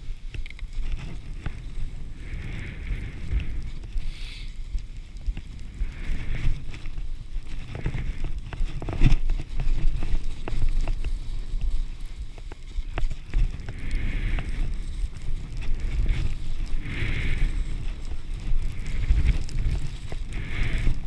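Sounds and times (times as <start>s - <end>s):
ski edges carving snow: 0.0s - 21.0s
wind buffeting microphone: 0.0s - 21.0s.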